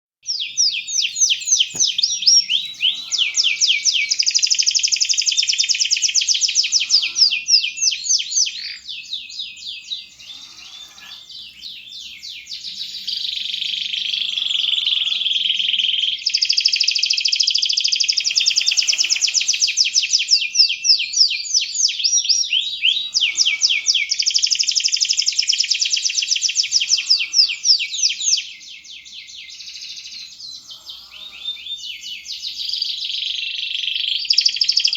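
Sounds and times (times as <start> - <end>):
canary singing trills: 0.3 - 34.9.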